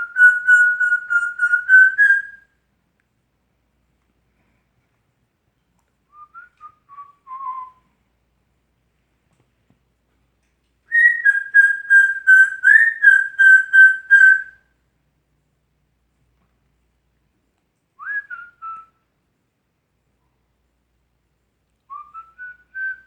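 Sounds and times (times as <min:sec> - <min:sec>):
parrot whistling: 0:00.0 - 0:02.4, 0:10.9 - 0:14.5.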